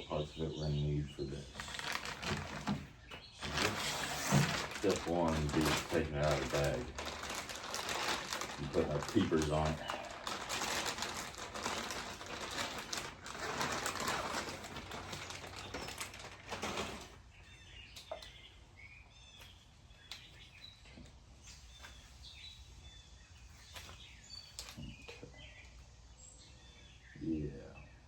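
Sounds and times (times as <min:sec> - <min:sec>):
small birds chirping: 0:00.0 - 0:28.0
plastic bag crinkling: 0:01.4 - 0:17.3.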